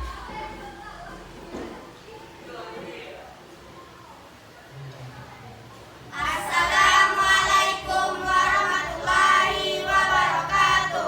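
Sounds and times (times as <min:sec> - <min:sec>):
children's choir singing: 0:06.1 - 0:11.0.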